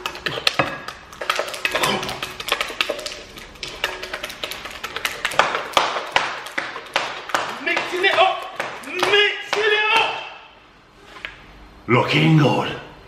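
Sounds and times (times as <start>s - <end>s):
utensil clicking against bowl: 0.0s - 5.6s.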